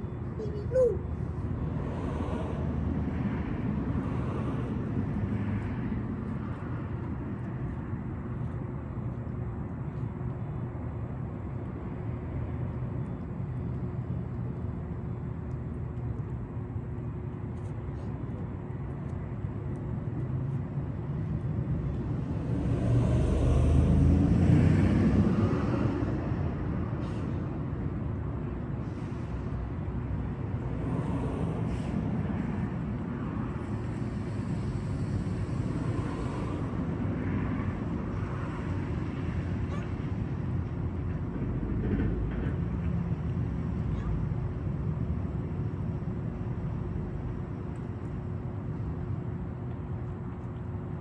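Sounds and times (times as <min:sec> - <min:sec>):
road traffic rumble: 0:00.0 - 0:51.0
vehicle passing: 0:22.2 - 0:26.2.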